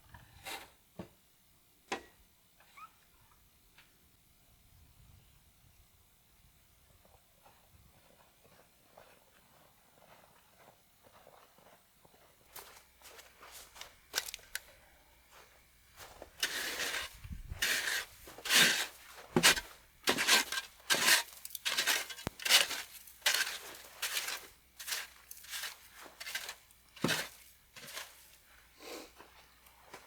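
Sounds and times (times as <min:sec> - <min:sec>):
footsteps crunching through snow: 0:08.0 - 0:14.7, 0:15.3 - 0:30.0.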